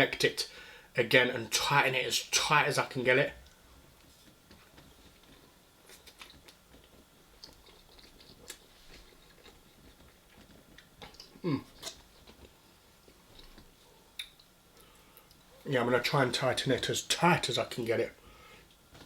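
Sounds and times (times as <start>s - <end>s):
person chewing food: 4.0s - 15.6s.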